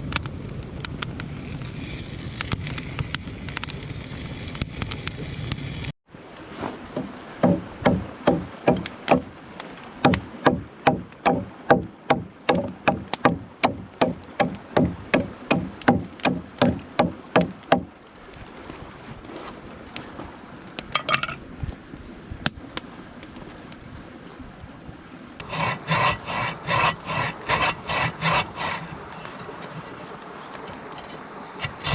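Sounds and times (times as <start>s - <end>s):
stream rushing: 6.1s - 21.6s, 25.2s - 31.9s
chopping wood: 7.0s - 9.3s, 10.0s - 17.9s.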